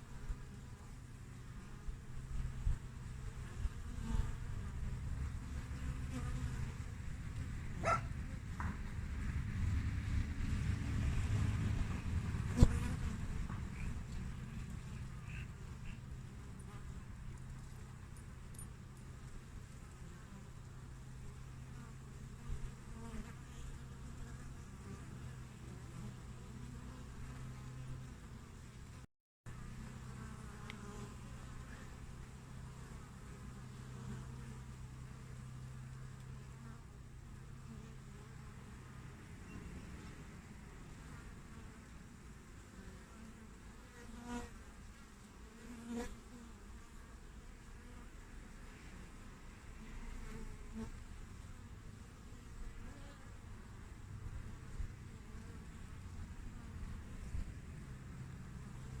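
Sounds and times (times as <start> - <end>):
bees humming: 12.5 - 17.3.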